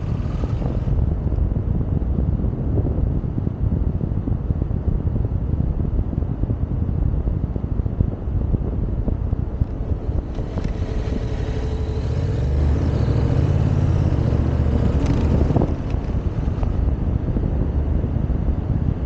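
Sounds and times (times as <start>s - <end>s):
vehicle engine: 0.0s - 1.8s, 9.3s - 19.0s
wind buffeting microphone: 0.0s - 19.0s.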